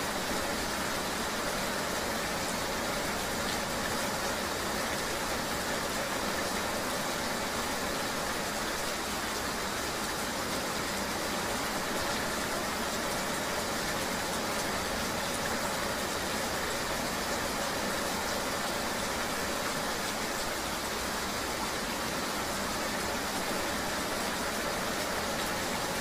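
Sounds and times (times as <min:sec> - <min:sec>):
rain hissing: 0:00.0 - 0:26.0.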